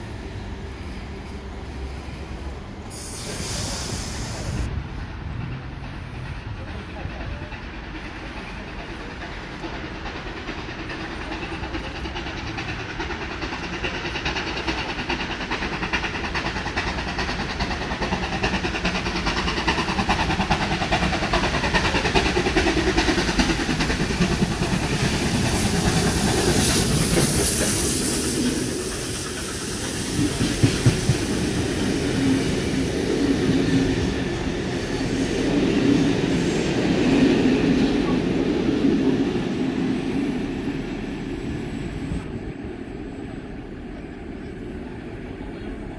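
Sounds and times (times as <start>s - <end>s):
train wheels clattering on rails: 0.0s - 42.6s
short high hiss: 2.9s - 4.7s.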